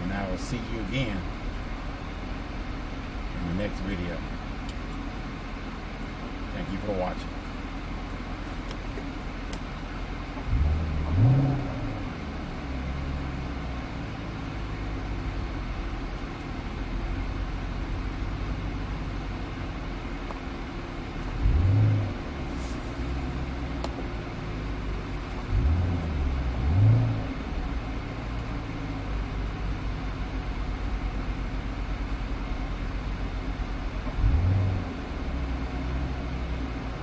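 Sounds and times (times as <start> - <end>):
car engine idling: 0.0 - 37.0
car engine revving blips: 9.0 - 37.0.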